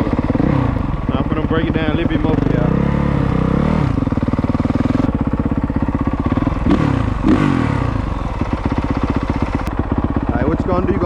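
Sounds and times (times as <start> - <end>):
dirt bike engine idling: 0.0 - 11.0
engine revving blips: 6.6 - 8.2.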